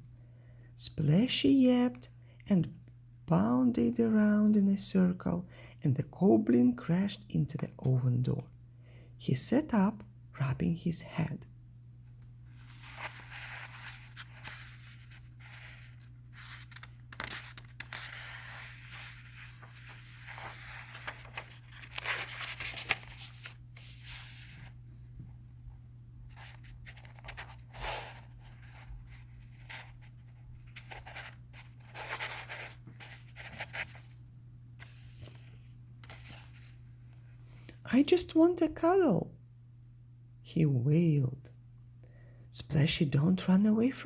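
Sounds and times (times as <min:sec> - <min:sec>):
steady low hum: 0:00.0 - 0:43.2
paper rustling and scraping: 0:12.5 - 0:24.8, 0:26.3 - 0:34.2, 0:34.8 - 0:36.8.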